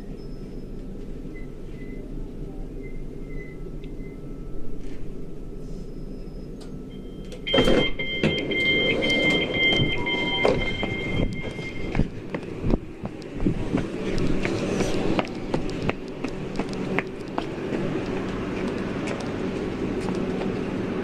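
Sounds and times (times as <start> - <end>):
train low rumble: 0.0 - 21.0
two-pitched door warning tone: 6.0 - 12.2.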